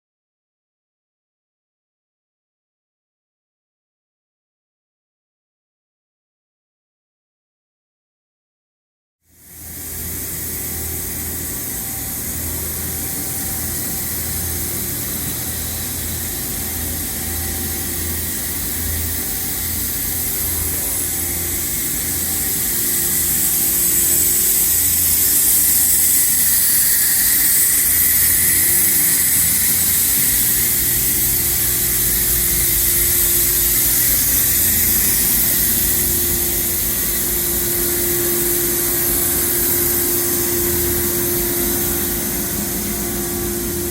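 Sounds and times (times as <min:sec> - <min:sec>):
machining center hiss and hum: 0:09.3 - 0:43.9.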